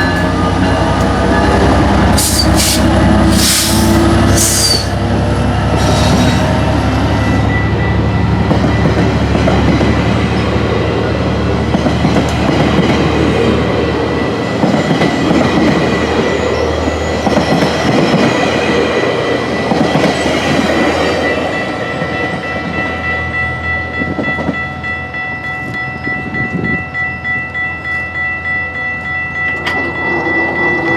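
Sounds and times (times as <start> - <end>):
diesel locomotive engine humming: 0.0 - 30.9
train wheels clickety-clack: 8.4 - 10.4, 11.6 - 13.4, 14.3 - 16.4, 17.1 - 21.2.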